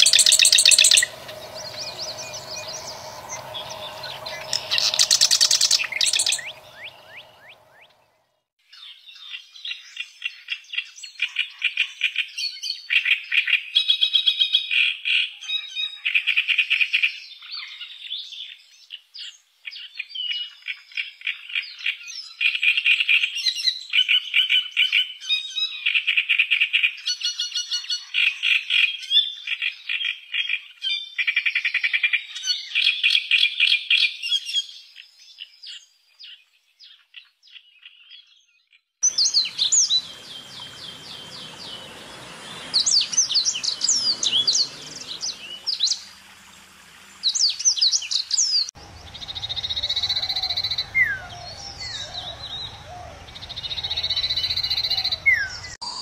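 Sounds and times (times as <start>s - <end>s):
chorus of rapid rattling calls: 0.0s - 7.4s, 39.0s - 55.8s
songbird whistling: 0.0s - 8.1s, 39.0s - 56.0s
bird calls: 0.0s - 8.2s, 39.0s - 56.0s
low hum: 0.0s - 8.2s, 48.8s - 55.8s.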